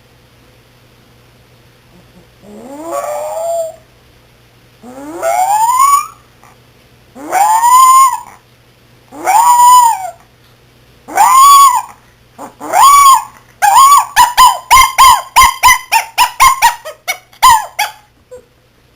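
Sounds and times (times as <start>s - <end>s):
puppy crying: 2.4s - 3.8s, 4.8s - 6.6s, 7.2s - 8.4s, 9.1s - 10.2s, 11.1s - 18.5s.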